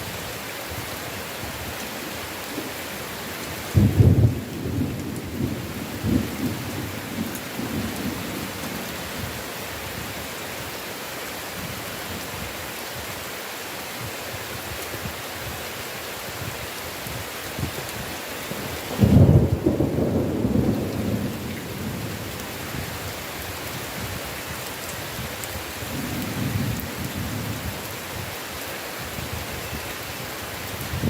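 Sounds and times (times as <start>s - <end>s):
heavy rain: 0.0s - 31.0s
thunder rumbling: 3.7s - 8.8s, 18.9s - 22.4s.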